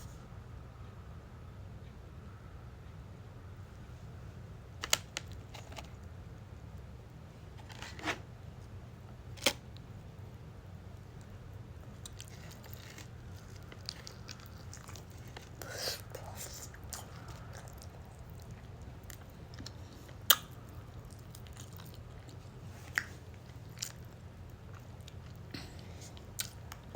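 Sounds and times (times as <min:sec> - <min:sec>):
steady low hum: 0:00.0 - 0:26.9
food packaging clicks and crackles: 0:04.8 - 0:06.0, 0:11.8 - 0:24.2.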